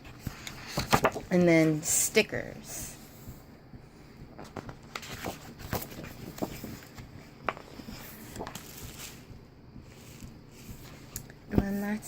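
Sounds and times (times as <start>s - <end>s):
faint fan hum: 0.0s - 12.0s
paper rustling and tapping: 0.1s - 1.4s, 4.4s - 9.2s.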